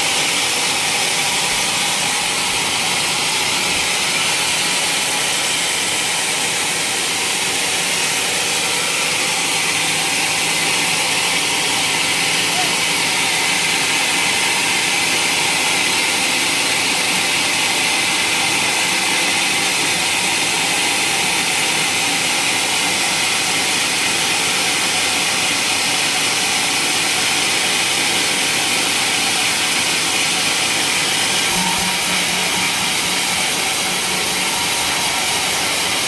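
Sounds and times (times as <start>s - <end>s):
saw cutting through wood: 0.0s - 36.0s.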